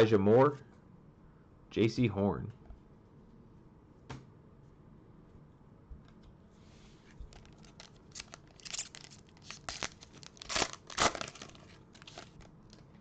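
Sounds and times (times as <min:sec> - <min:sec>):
wrapper tearing and crinkling: 0:07.3 - 0:12.8.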